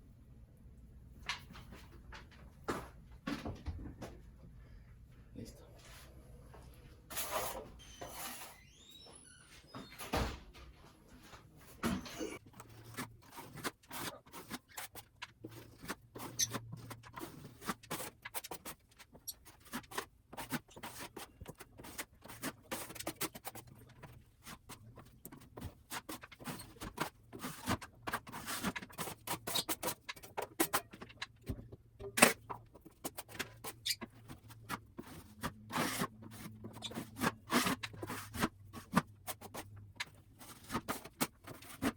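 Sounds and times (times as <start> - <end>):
hand tool scraping drywall ceiling: 12.4 - 31.2, 32.1 - 41.9.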